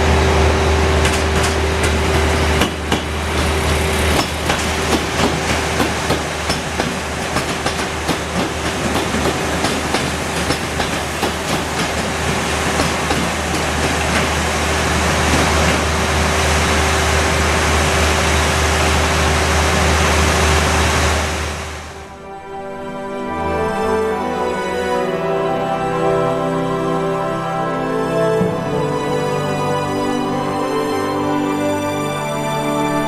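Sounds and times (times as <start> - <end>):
train rumble and hum: 0.0 - 22.2
train wheels clattering over rail joints: 1.0 - 16.3
music: 22.0 - 33.0.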